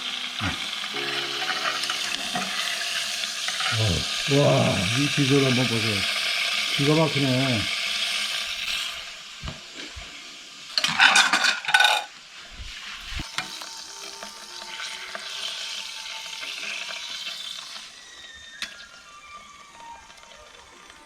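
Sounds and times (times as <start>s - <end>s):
steak sizzling: 0.0s - 21.0s
dishes clattering: 10.8s - 12.1s.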